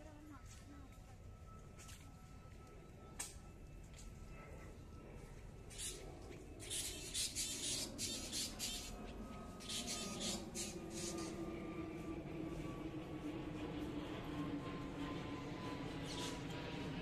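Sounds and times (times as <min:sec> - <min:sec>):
birds squawking: 0:05.7 - 0:06.0, 0:06.6 - 0:11.4.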